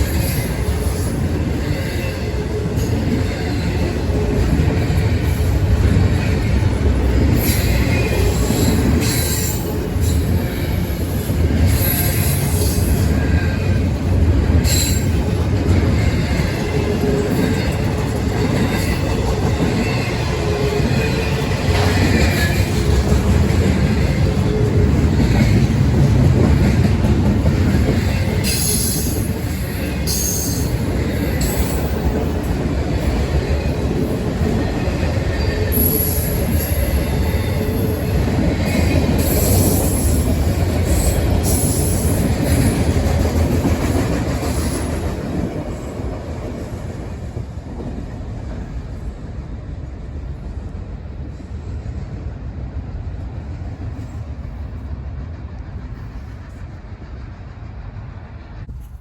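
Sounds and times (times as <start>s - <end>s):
train wheels rumbling on rail: 0.0s - 59.0s
high-pitched wheel squeals: 14.6s - 15.2s.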